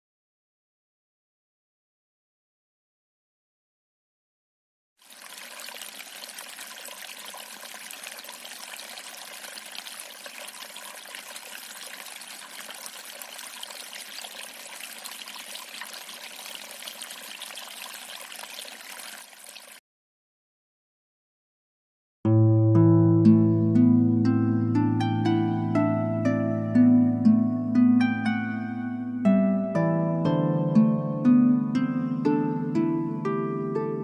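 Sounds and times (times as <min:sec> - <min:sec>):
running water rushing: 0:05.0 - 0:19.8.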